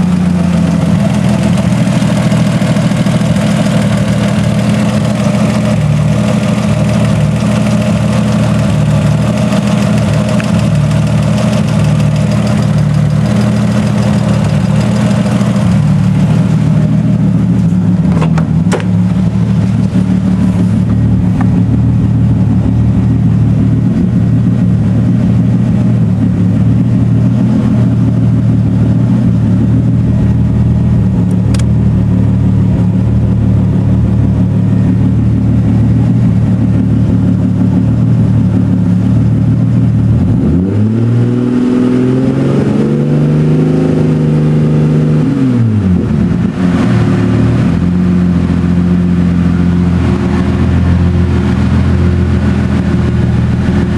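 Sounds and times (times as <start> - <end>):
engine ticking: 0.0 - 40.7
car engine idling: 0.0 - 41.7, 45.6 - 53.9
sharp clicks: 31.3 - 31.7.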